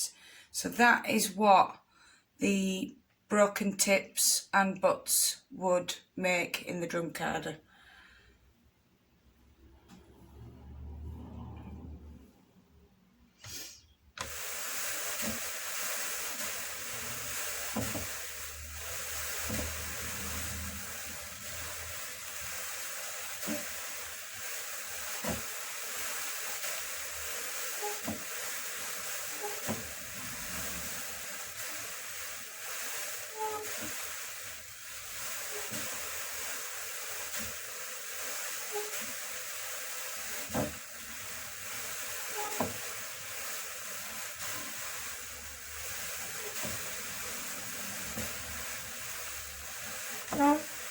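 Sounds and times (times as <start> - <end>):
drum carder brushing hiss: 13.3 - 50.9.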